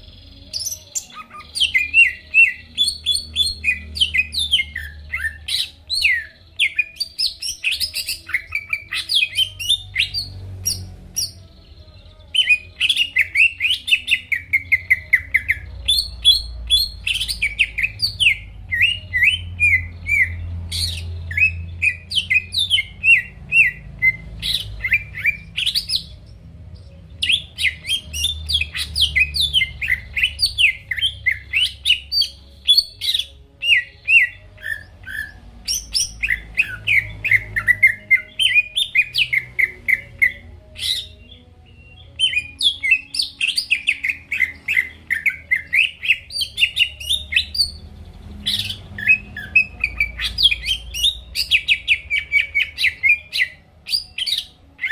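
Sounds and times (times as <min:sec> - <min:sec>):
bird singing high chirps and whistles: 0:00.0 - 0:54.9.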